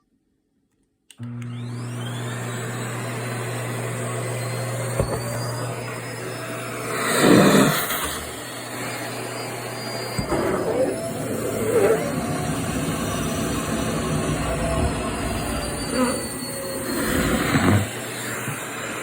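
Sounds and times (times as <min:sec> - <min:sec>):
vacuum cleaner running: 0:01.2 - 0:19.0.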